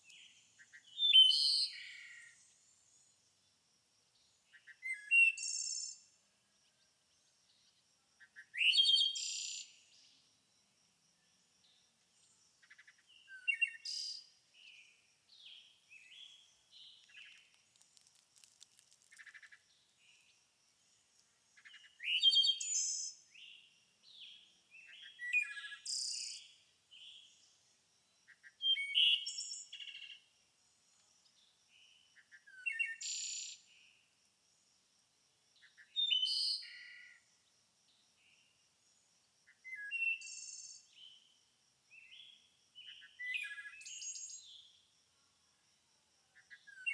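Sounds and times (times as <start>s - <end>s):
songbirds singing: 0.0s - 3.3s, 11.2s - 30.3s, 31.2s - 34.0s.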